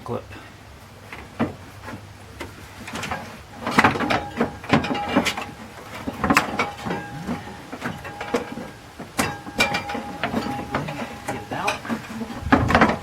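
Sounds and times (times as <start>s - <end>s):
knocks and clicks of hand tools: 1.1s - 13.0s
short metallic rings: 2.9s - 13.0s.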